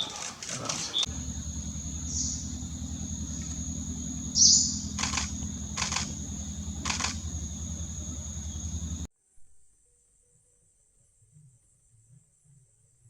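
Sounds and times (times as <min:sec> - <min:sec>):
low motor drone: 0:01.0 - 0:09.1
high-pitched whine: 0:01.1 - 0:09.1
sharp high chirps: 0:01.1 - 0:09.1.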